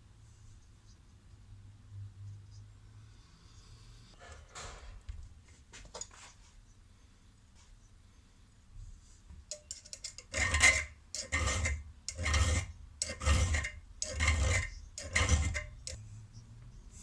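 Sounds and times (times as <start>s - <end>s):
scraping metal spanner: 9.5s - 16.0s.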